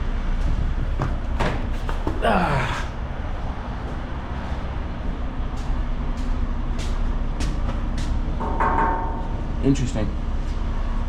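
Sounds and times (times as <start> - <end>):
truck engine running: 0.0 - 8.4.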